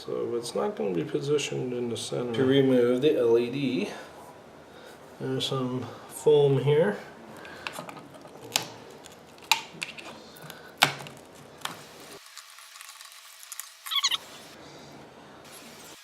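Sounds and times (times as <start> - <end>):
short squeak: 13.9 - 14.2.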